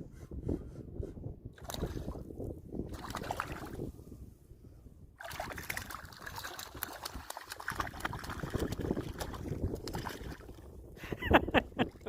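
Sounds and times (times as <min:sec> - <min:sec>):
water splashing and sloshing: 0:01.6 - 0:04.0, 0:05.2 - 0:10.8.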